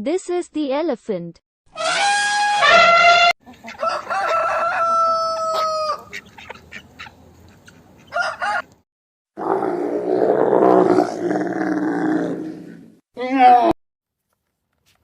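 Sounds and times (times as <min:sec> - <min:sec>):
rooster crowing: 0:01.8 - 0:06.2, 0:08.1 - 0:08.8
rooster clucking: 0:02.7 - 0:08.8.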